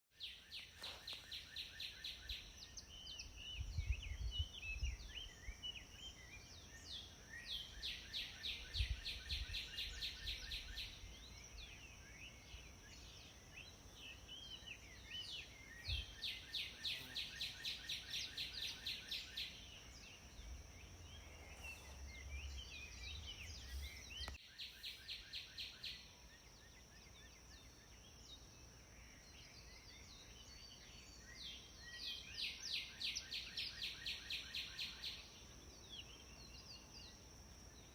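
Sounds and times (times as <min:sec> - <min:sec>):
songbirds singing and chirping: 0:00.1 - 0:37.9.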